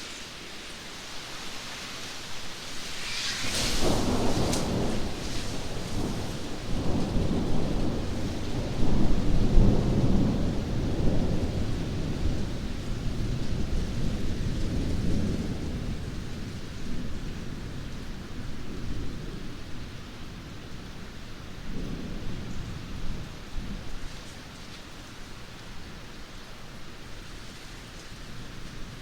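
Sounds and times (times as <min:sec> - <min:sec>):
steady rain: 0:00.0 - 0:29.0
deep roll of thunder: 0:03.0 - 0:19.6.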